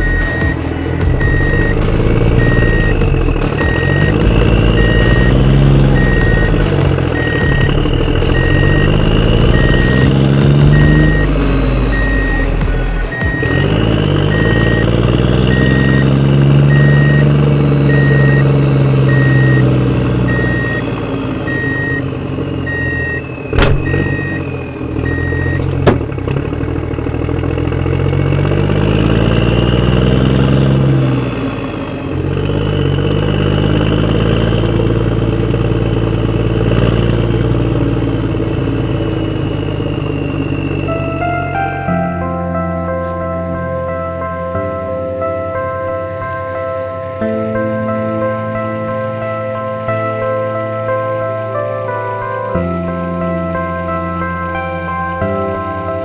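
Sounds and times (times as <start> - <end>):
reversing beep: 0.0 - 26.2, 38.3 - 42.2.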